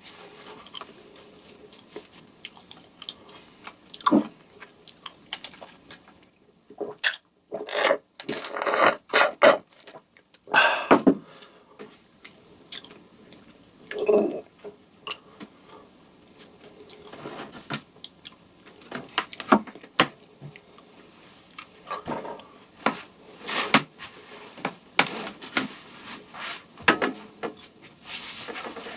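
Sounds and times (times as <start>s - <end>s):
person chewing a soft donut: 0.6s - 6.2s, 12.2s - 15.3s.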